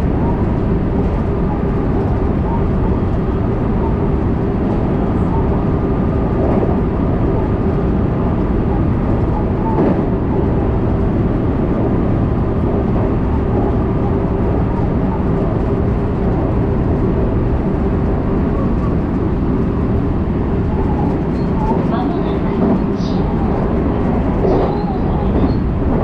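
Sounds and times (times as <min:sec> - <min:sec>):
electric train hum: 0:00.0 - 0:26.0
train wheels rumbling on rail: 0:00.0 - 0:26.0.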